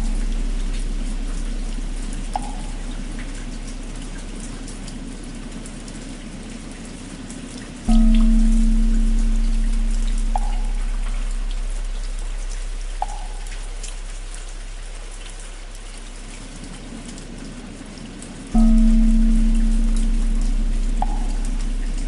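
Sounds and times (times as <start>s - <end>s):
deep bell ringing: 0.0s - 3.9s, 7.9s - 14.8s, 18.6s - 22.0s
rain pattering: 0.0s - 22.0s.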